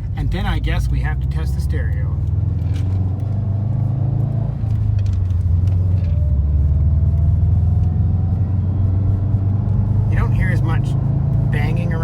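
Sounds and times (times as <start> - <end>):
car engine droning from inside cabin: 0.0 - 12.0.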